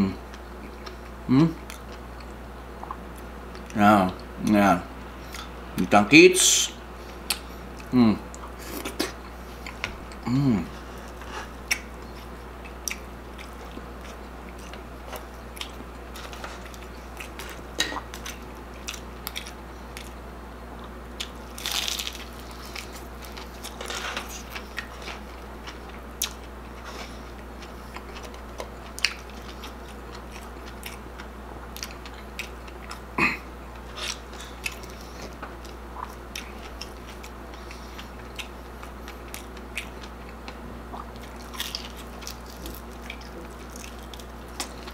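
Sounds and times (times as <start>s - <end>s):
crunchy food chewing: 7.2s - 20.2s, 20.8s - 44.9s.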